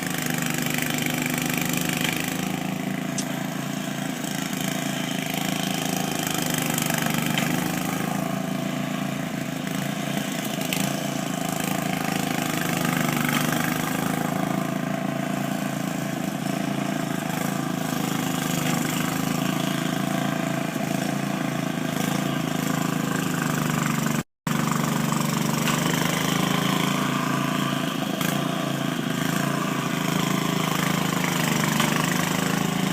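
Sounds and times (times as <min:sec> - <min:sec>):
engine running steadily: 0:00.0 - 0:32.9.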